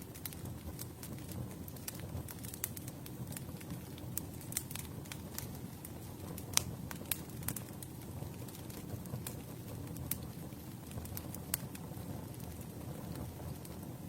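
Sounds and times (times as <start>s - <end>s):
burning wood crackling and popping: 0.0s - 14.0s
low rumble of flames: 0.0s - 14.0s.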